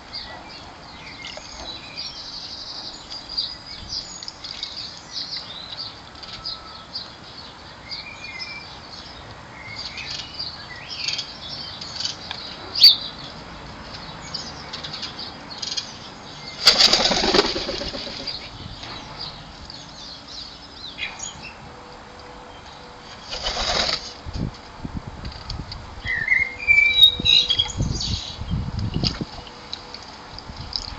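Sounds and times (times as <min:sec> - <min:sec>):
songbird chirps and calls: 0:00.0 - 0:21.6, 0:26.0 - 0:29.9
bird wings flapping: 0:16.6 - 0:18.5, 0:23.3 - 0:24.1.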